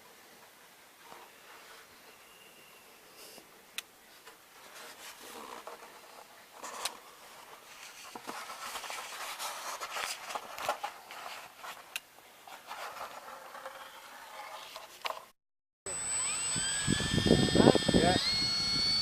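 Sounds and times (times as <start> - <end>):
rustling and scraping on workbench: 4.2 - 15.3.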